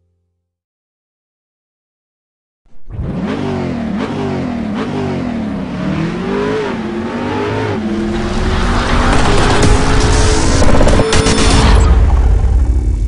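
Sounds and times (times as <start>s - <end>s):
car engine accelerating: 2.7s - 11.4s.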